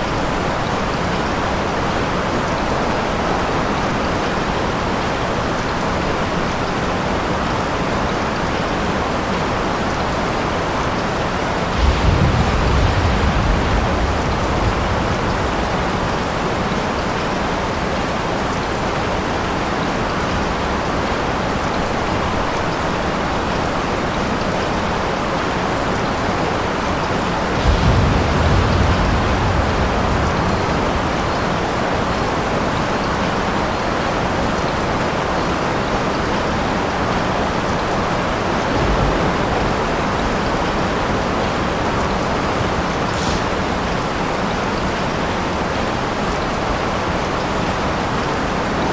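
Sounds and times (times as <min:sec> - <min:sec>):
steady rain: 0:00.0 - 0:48.9
thunder rumbling: 0:10.7 - 0:19.3, 0:23.6 - 0:34.1, 0:36.8 - 0:48.1.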